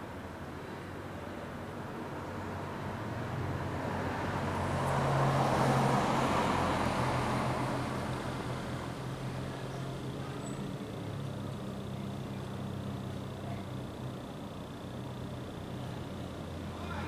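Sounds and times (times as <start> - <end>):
car driving past: 3.4 - 9.6.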